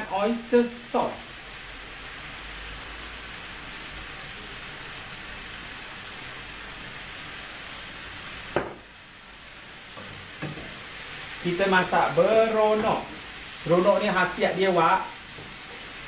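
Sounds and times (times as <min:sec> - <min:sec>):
food sizzling in a pan: 0:00.0 - 0:16.0
knock: 0:08.6 - 0:08.8.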